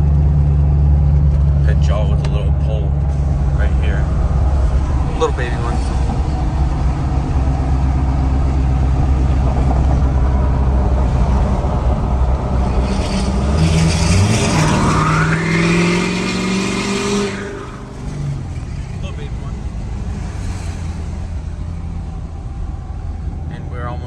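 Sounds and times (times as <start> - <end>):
truck engine running: 0.0 - 24.0
rising whine: 2.2 - 18.6.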